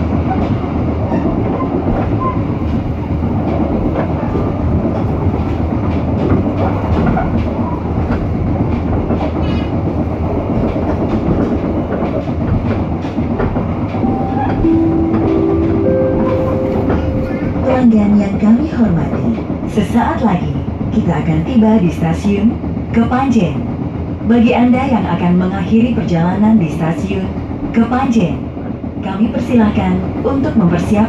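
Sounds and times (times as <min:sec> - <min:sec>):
train rumble inside coach: 0:00.0 - 0:31.0
sustained tones: 0:14.0 - 0:18.5.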